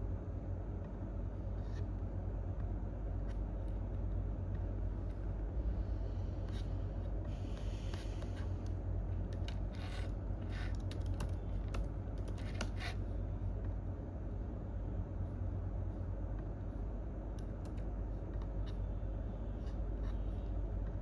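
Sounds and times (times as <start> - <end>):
low office room hum: 0.0 - 21.0
keyboard and mouse clicks: 10.6 - 12.9.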